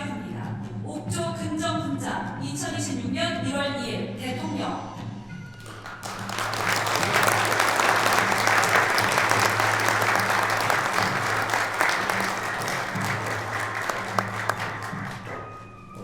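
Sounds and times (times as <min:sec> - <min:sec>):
soft background music: 0:00.0 - 0:16.0
audience clapping: 0:05.6 - 0:15.6.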